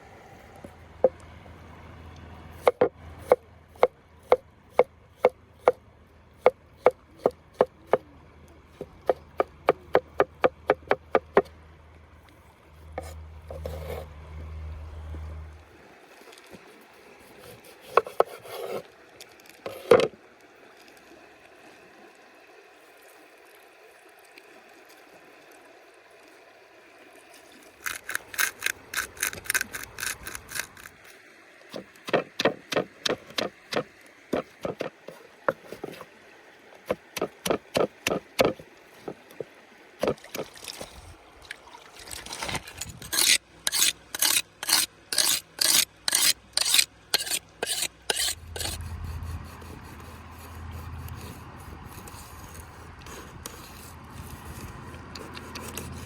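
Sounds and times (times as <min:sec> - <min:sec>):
hand scraping food: 0:13.0 - 0:14.1, 0:27.8 - 0:31.0, 0:42.1 - 0:56.0.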